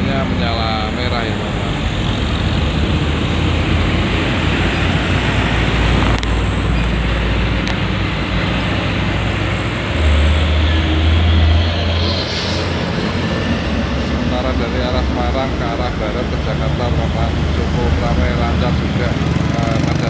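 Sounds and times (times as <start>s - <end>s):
heavy highway traffic: 0.0s - 20.0s
heavy vehicle passing close: 0.0s - 20.0s.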